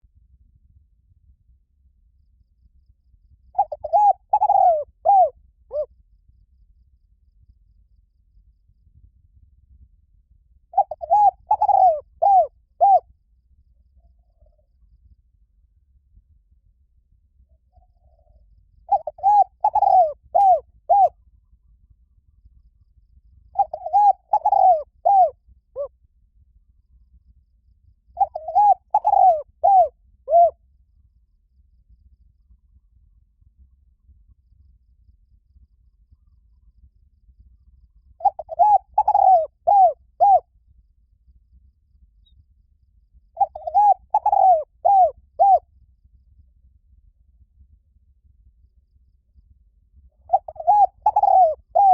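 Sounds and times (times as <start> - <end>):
dove cooing: 3.6 - 5.9, 10.8 - 13.0, 17.8 - 21.2, 23.5 - 25.9, 28.2 - 30.6, 38.2 - 40.4, 43.4 - 45.6, 50.3 - 51.9.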